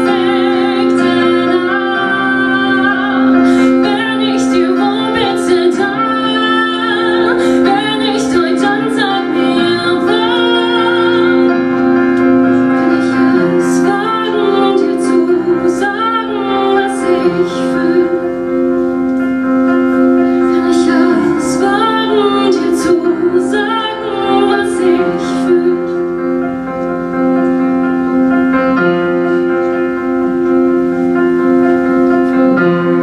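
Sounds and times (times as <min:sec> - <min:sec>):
woman singing: 0:00.0 - 0:11.6, 0:12.6 - 0:18.4, 0:20.2 - 0:26.1
held accompaniment chords: 0:00.0 - 0:33.0.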